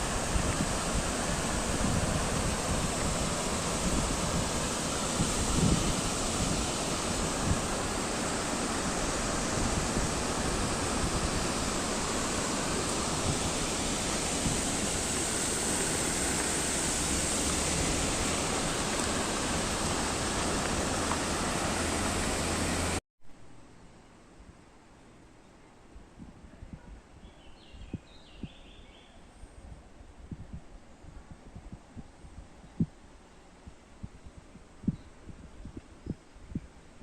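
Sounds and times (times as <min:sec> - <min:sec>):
water rushing: 0:00.0 - 0:23.0.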